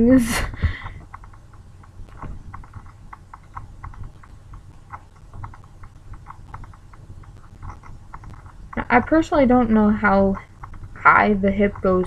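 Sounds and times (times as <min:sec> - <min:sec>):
faint low hum: 0:00.0 - 0:12.0
laptop keys clicking: 0:00.8 - 0:08.8.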